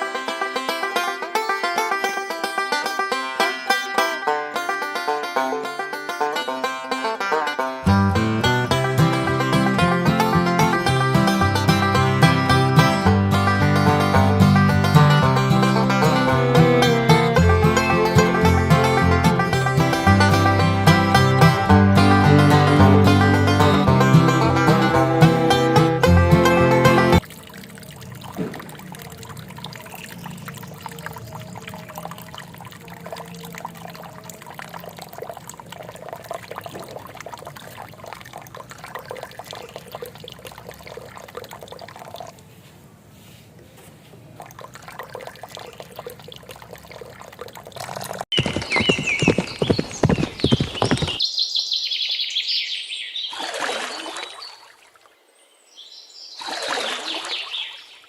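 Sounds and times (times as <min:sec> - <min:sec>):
water pouring and trickling: 0:26.9 - 0:42.5, 0:44.2 - 0:48.3, 0:53.3 - 0:55.2, 0:56.4 - 0:58.0.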